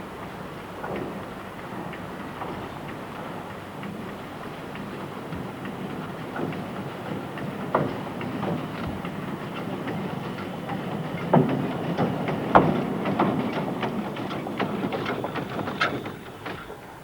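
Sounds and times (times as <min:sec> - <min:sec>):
steam locomotive running rumble: 0:04.4 - 0:17.0
wagons clanking and rattling: 0:06.2 - 0:17.0.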